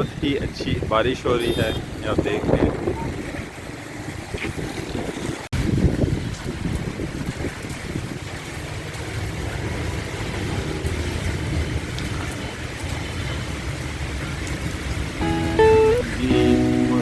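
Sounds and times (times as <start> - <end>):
heavy rain hissing: 8.6 - 17.0
plucked guitar music: 15.2 - 17.0.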